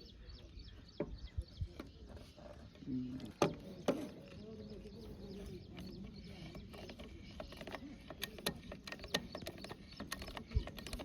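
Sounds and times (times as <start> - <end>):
sharp clicks and knocks: 5.8 - 11.0.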